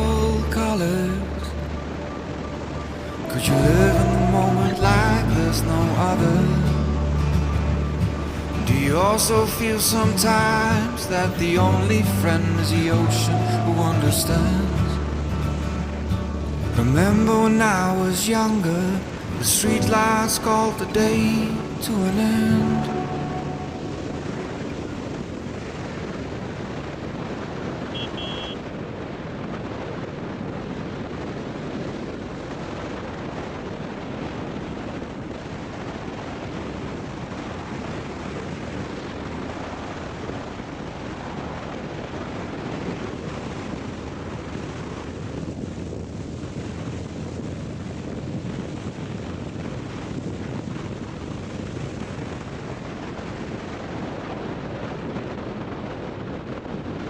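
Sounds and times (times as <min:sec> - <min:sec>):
road noise: 0:00.0 - 0:57.0
wind rushing on microphone: 0:00.0 - 0:57.0
high beep: 0:00.8 - 0:09.1.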